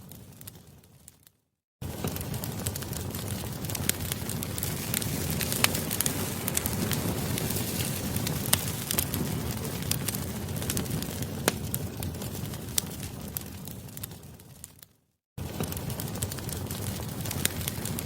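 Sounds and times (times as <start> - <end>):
fire popping and crackling: 0.0 - 18.0
campfire flames rushing: 1.8 - 14.8, 15.4 - 18.0.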